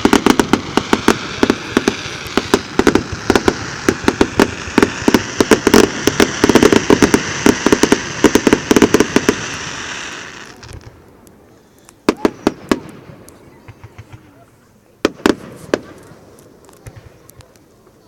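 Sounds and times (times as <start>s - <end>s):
steady hiss: 0.0s - 13.4s
fireworks bangs and crackles: 0.0s - 14.4s, 15.0s - 18.0s.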